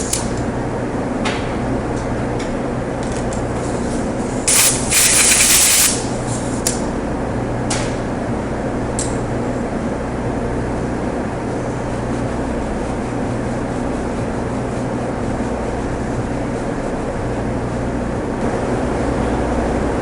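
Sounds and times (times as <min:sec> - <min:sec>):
low shop hum: 0:00.0 - 0:20.0
compressed air hiss: 0:04.5 - 0:06.1.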